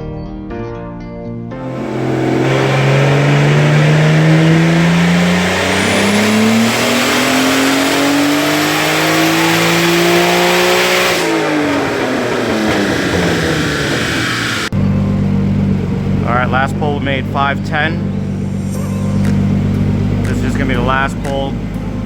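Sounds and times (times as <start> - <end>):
car engine revving: 1.6 - 22.0
faint high turbo whistle: 18.0 - 21.0.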